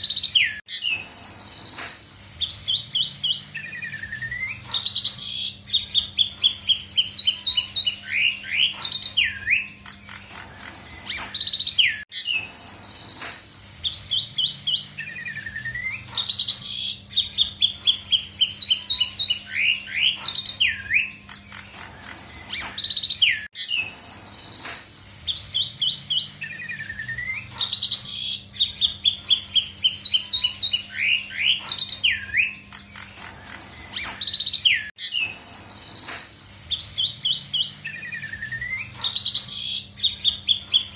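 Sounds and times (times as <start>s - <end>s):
starling singing: 0.0s - 40.9s.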